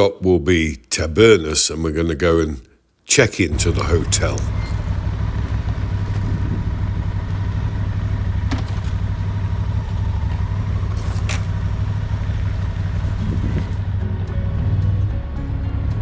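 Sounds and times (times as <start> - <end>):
motorcycle engine rumble: 3.5 - 15.6
road and wind noise: 3.5 - 16.0.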